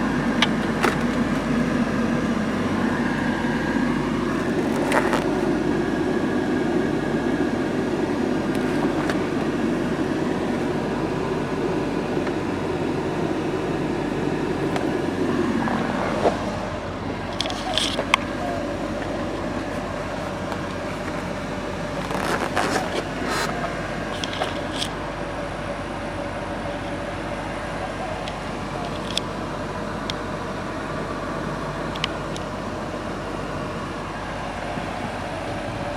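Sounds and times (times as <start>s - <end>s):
sharp clicks and rattles: 0.0s - 5.8s, 17.1s - 25.1s
car engine running: 0.0s - 35.9s.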